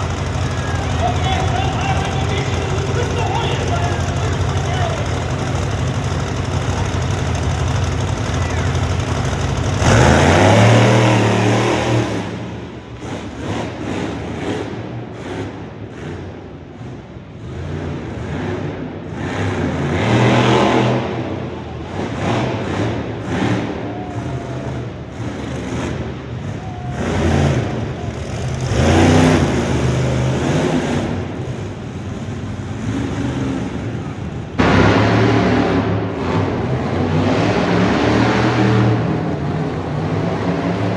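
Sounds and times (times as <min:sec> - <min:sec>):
monster truck engine revving: 0:00.0 - 0:40.9.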